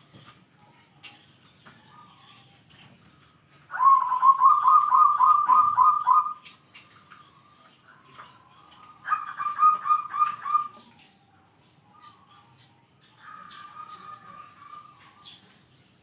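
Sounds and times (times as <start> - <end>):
dove trilled cooing: 3.7 - 6.5, 8.7 - 11.1, 13.2 - 15.5.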